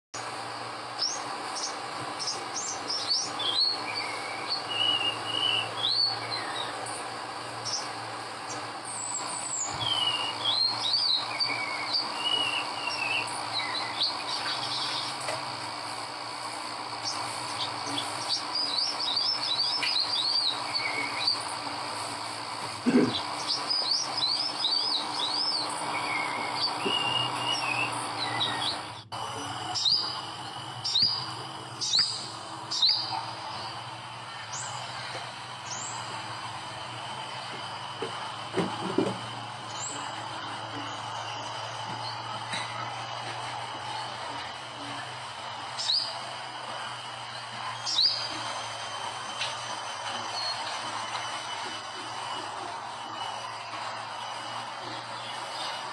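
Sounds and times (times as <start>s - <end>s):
insects chorus: 0.2s - 55.9s
songbird high chirps and trills: 1.0s - 7.0s, 17.0s - 21.5s, 29.7s - 30.2s, 30.8s - 33.7s, 47.8s - 48.3s.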